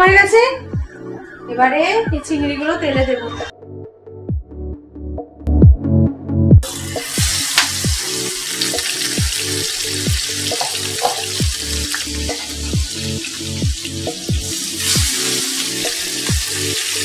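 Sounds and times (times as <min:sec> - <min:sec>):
prawns sizzling in oil: 0:06.6 - 0:17.0.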